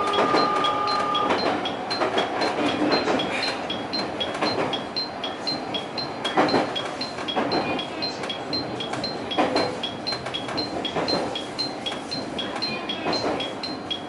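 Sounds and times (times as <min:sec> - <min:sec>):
train wheels thumping over rail joints: 0:00.0 - 0:07.8, 0:08.5 - 0:12.4
electric train running: 0:00.0 - 0:14.0
two-tone electronic beeping: 0:00.0 - 0:14.0.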